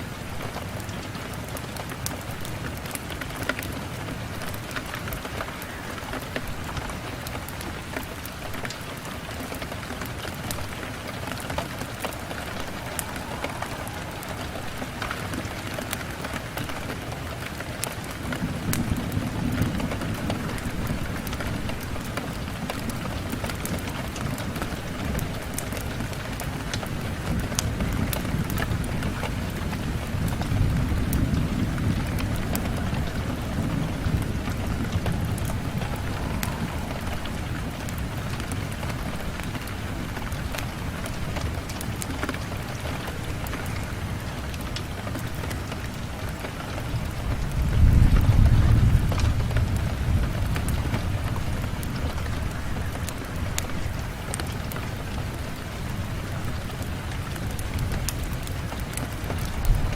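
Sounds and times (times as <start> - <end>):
rain on a window: 0.0 - 59.9
deep rumble: 10.7 - 17.0, 29.9 - 39.6.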